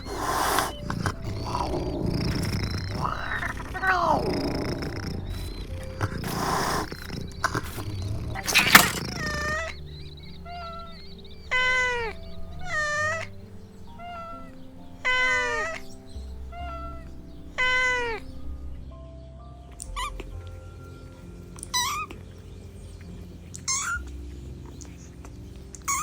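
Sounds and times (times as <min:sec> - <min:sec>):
kittens meowing: 0:00.0 - 0:18.6, 0:19.8 - 0:20.4, 0:21.6 - 0:22.2, 0:23.5 - 0:24.1
soft background music: 0:00.0 - 0:26.0.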